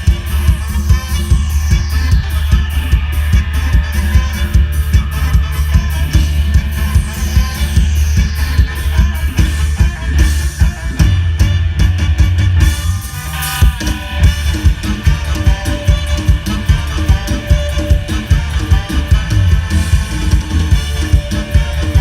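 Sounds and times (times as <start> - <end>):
drum kit: 0.0 - 22.0
guitar: 0.0 - 22.0
heavy bass: 0.0 - 22.0
live band dance music: 0.0 - 22.0.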